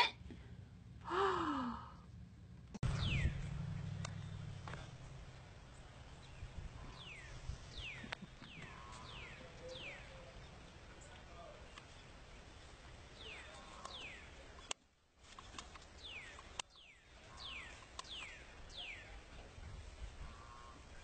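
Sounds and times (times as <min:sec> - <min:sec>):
low hum: 0:00.2 - 0:14.4.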